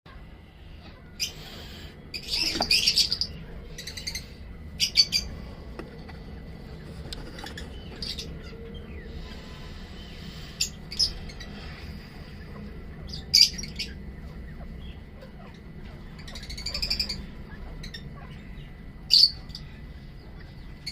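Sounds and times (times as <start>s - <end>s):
low steady hum: 0.1s - 20.9s
pet bird chirping and squawking: 1.0s - 5.4s, 7.2s - 8.6s, 14.6s - 18.5s, 19.1s - 19.6s.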